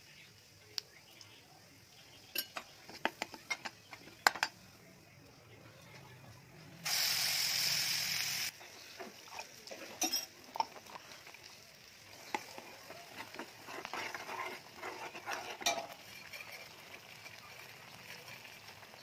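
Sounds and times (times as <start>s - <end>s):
chutney sizzling in hot oil: 0.0s - 5.2s, 6.8s - 19.0s
steel spoon scraping pan: 9.8s - 10.8s, 12.3s - 18.9s.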